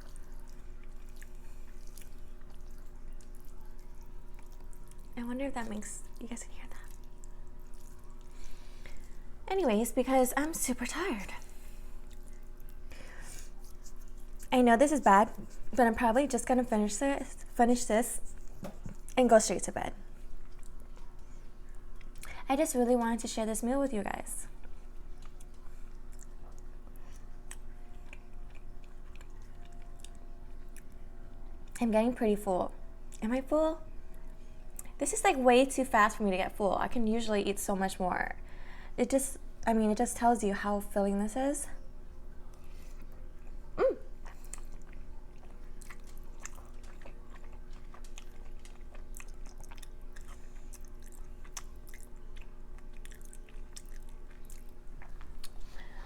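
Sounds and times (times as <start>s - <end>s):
person chewing food: 0.0s - 5.2s, 6.0s - 9.4s, 11.4s - 14.5s, 20.2s - 22.3s, 24.6s - 31.8s, 42.5s - 56.0s
faint steady hum: 0.0s - 56.0s.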